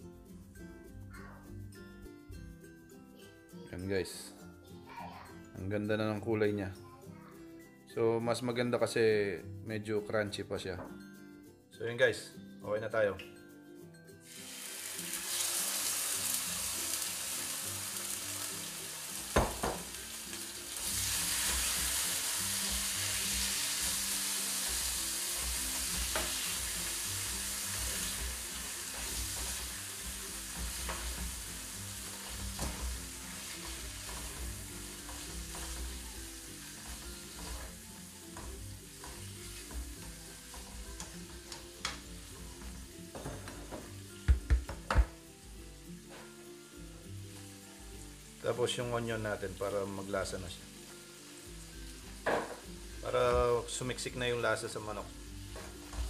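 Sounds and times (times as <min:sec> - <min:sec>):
chicken sizzling in hot oil: 0:14.2 - 0:43.8, 0:46.7 - 0:56.0
utensil knocking against pan: 0:19.4 - 0:19.9, 0:43.1 - 0:45.2.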